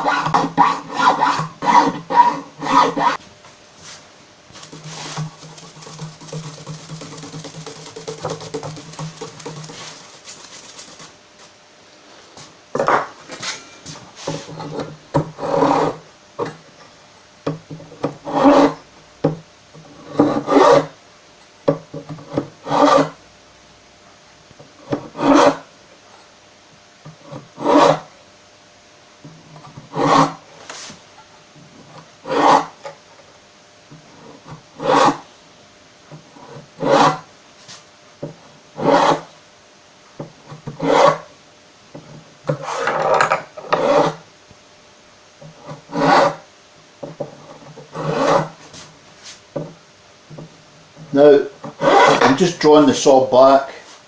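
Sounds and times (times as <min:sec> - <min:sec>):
file rasping on wood: 0:00.0 - 0:03.2, 0:04.6 - 0:11.2, 0:14.4 - 0:16.0, 0:18.0 - 0:18.8, 0:20.0 - 0:21.0, 0:22.3 - 0:23.2, 0:24.9 - 0:25.7, 0:27.3 - 0:28.1, 0:29.9 - 0:30.4, 0:32.2 - 0:32.8, 0:34.2 - 0:35.2, 0:36.3 - 0:37.3, 0:38.8 - 0:39.3, 0:40.6 - 0:41.3, 0:42.5 - 0:44.2, 0:45.6 - 0:46.5, 0:47.5 - 0:48.6, 0:51.6 - 0:52.4.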